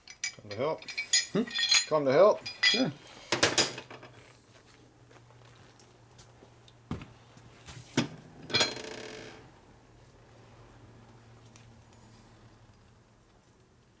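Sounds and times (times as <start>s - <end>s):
metal parts clicking and knocking: 0.0s - 1.9s.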